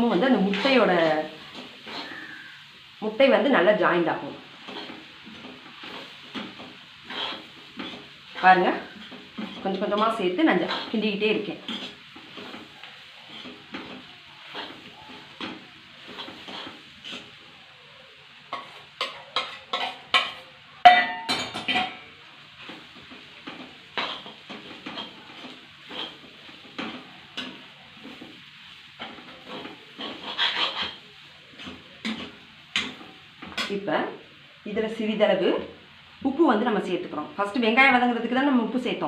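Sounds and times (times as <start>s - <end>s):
faint sizzle: 0.0s - 39.0s
utensil scraping a pan: 0.1s - 2.6s, 4.6s - 17.4s, 18.5s - 20.5s, 22.6s - 33.8s
utensil clanging against pan: 18.5s - 22.1s.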